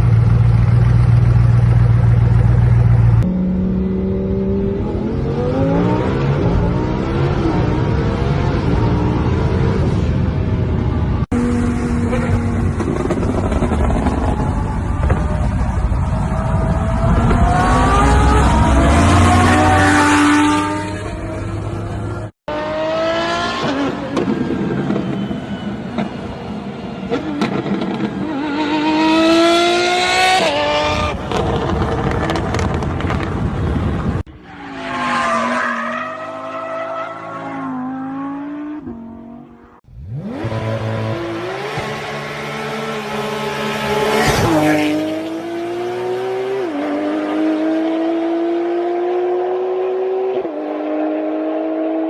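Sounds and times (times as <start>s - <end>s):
sports car engine accelerating: 11.3s - 24.3s, 37.6s - 52.0s.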